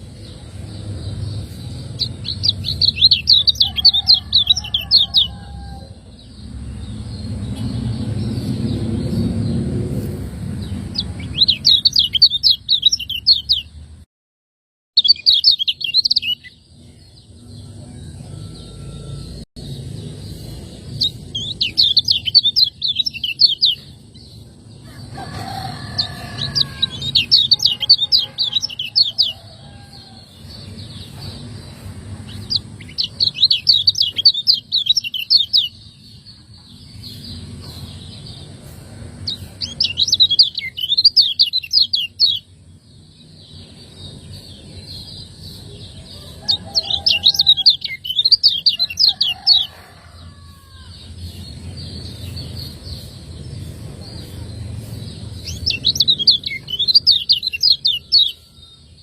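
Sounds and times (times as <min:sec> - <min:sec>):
steady low hum: 0:51.0 - 0:57.4.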